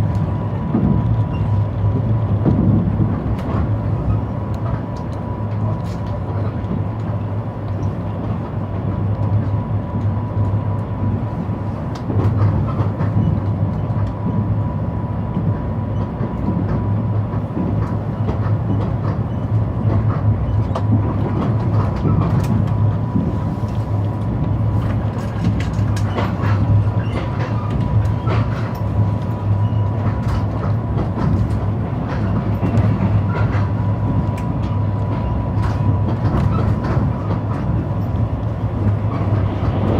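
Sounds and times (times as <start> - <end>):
train rumbling on rails: 0.0 - 39.9
wheels clicking over rail joints: 16.4 - 39.9.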